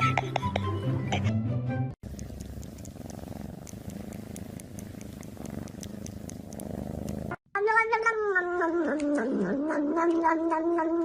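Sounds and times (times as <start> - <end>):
cat purring: 2.0 - 7.4.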